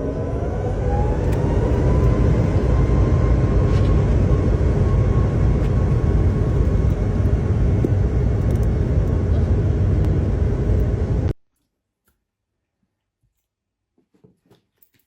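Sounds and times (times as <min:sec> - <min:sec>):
engine rumbling with whine: 0:00.0 - 0:11.4.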